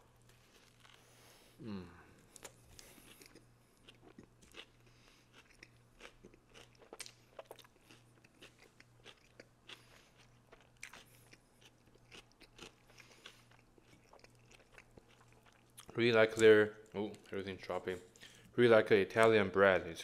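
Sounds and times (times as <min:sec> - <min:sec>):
chewing sandwich crunches: 0:00.1 - 0:01.1, 0:02.2 - 0:16.5.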